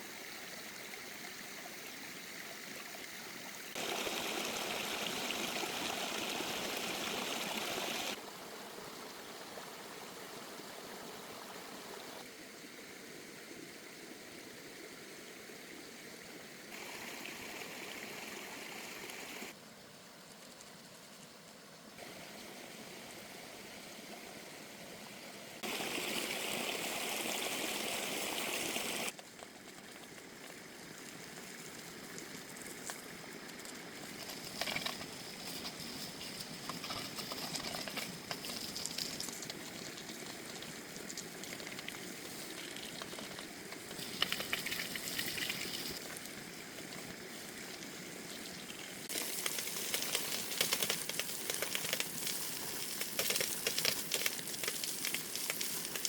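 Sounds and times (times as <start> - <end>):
mountain stream rushing: 3.7 - 8.8, 25.6 - 29.2.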